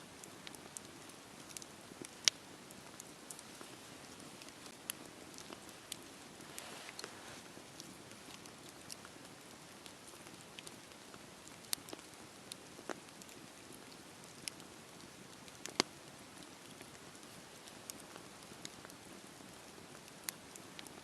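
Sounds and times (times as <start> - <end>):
fire crackling and popping: 0.1 - 21.0
fire hissing: 6.3 - 7.5.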